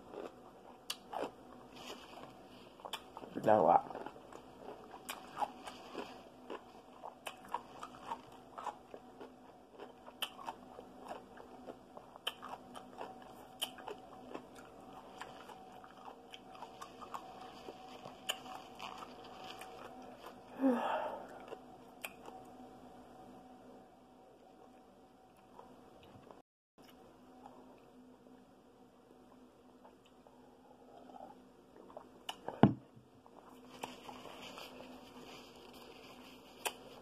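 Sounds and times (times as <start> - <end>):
person chewing pickle: 0.0 - 20.5, 21.2 - 22.6, 29.3 - 32.6, 33.2 - 37.0.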